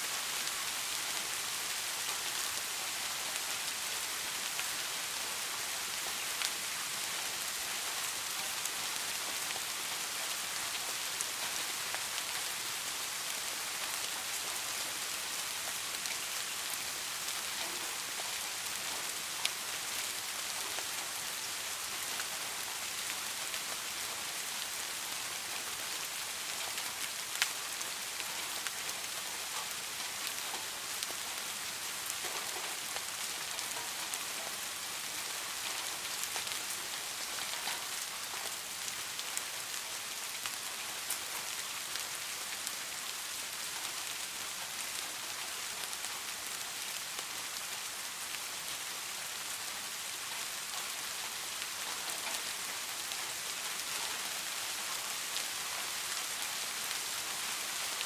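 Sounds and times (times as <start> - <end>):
steady rain hiss: 0.0 - 58.0
rain drop ticks: 16.0 - 19.6.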